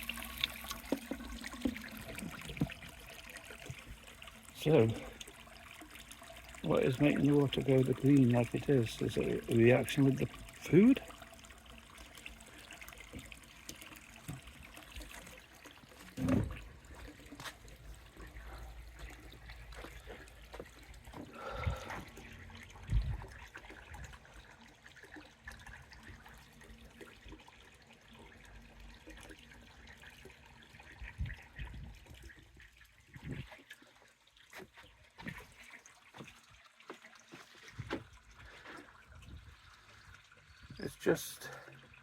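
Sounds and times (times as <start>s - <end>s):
pond water trickling: 0.0s - 42.0s.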